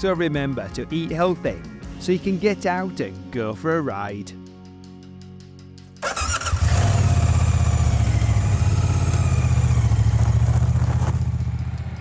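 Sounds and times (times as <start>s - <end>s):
motorcycle engine starting and idling: 6.0s - 12.0s
starter whine: 6.0s - 12.0s.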